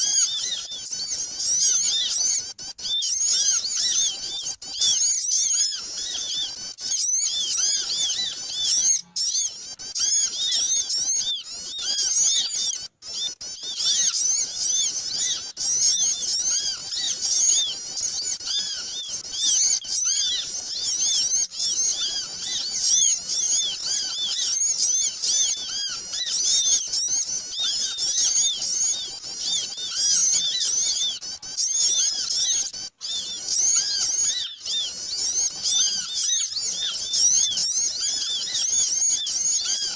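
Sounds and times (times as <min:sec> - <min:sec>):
chorus of small birds chirping: 0:00.0 - 0:39.9.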